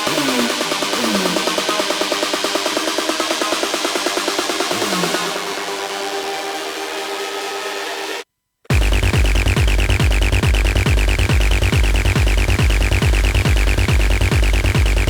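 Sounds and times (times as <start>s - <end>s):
fast ticking hi-hats: 0.0s - 5.9s, 8.7s - 15.0s
kick drum beat: 8.7s - 15.0s.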